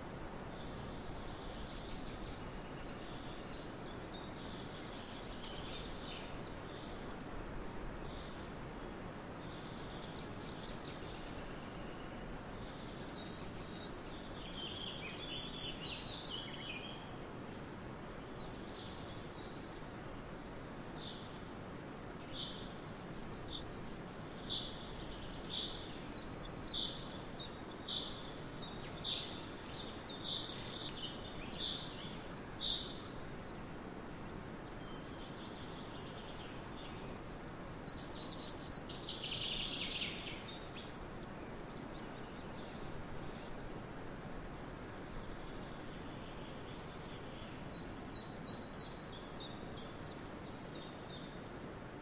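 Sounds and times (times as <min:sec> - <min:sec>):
outdoor background hiss: 0:00.0 - 0:52.0
birds chirping: 0:22.2 - 0:33.1.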